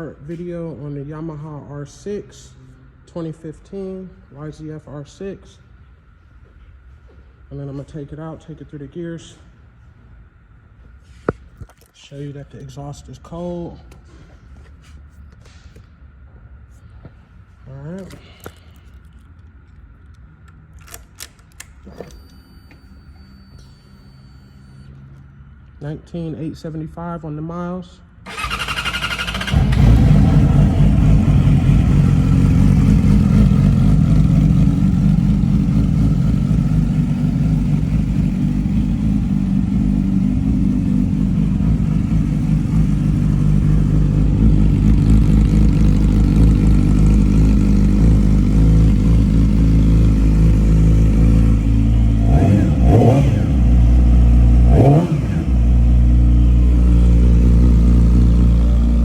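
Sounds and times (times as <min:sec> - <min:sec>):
motorcycle engine starting: 0:28.2 - 0:59.0
engine idling: 0:28.3 - 0:59.0
engine throttle blips: 0:28.3 - 0:59.0.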